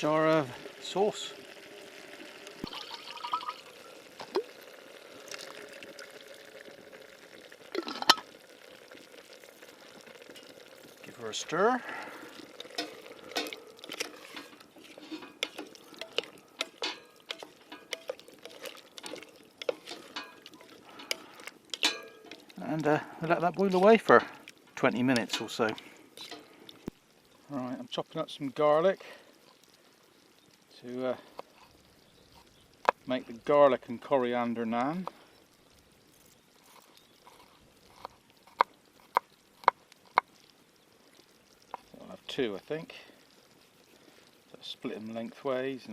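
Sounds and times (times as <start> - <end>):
spoon scraping a cooking pot: 12.5 - 22.5.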